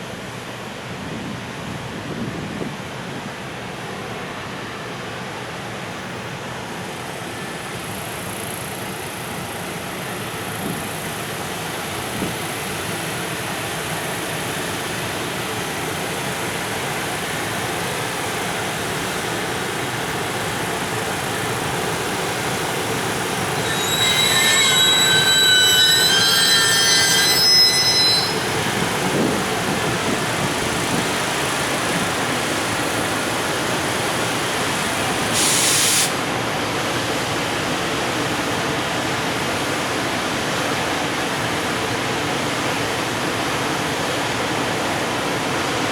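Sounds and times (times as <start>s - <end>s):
freight train rolling: 0.0s - 45.9s
train wheels squealing: 19.0s - 32.1s
short hiss: 35.3s - 36.3s.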